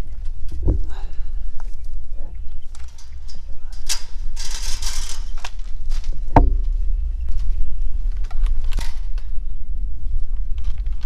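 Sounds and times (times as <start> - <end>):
steady low rumble: 0.0 - 4.6, 5.5 - 11.0
sharp knock: 6.4 - 7.6.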